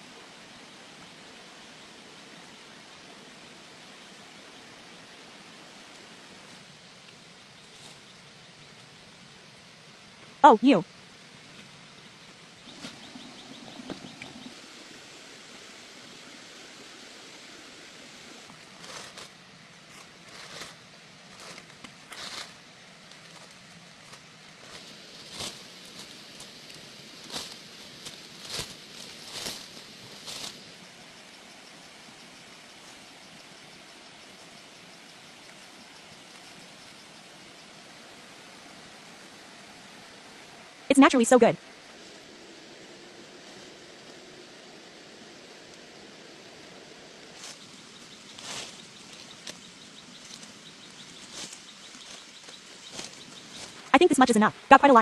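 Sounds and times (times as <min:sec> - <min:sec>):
steady hiss: 0:00.0 - 0:55.0
leafy plants rustling: 0:05.0 - 0:09.5, 0:11.2 - 0:31.8, 0:38.0 - 0:55.0.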